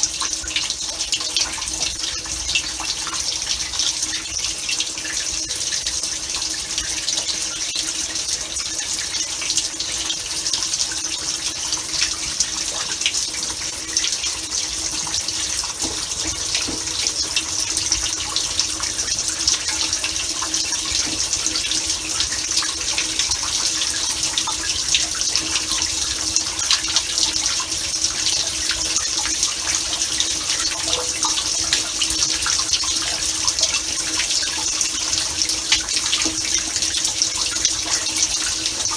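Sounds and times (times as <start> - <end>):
dishwasher pump hum: 9.1 - 38.9
water spraying and splashing: 12.0 - 34.4.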